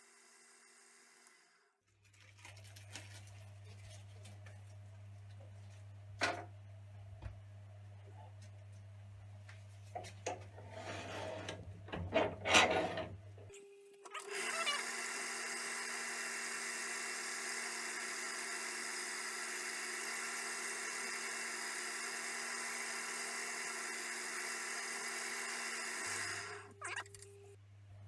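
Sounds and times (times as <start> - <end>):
wood lathe motor hum: 0.0 - 1.7, 14.2 - 26.8.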